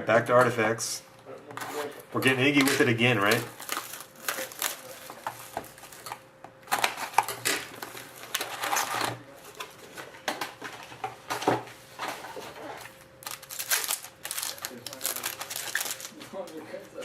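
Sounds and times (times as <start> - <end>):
card wrappers crinkling and tearing: 2.3 - 9.7, 12.8 - 16.2.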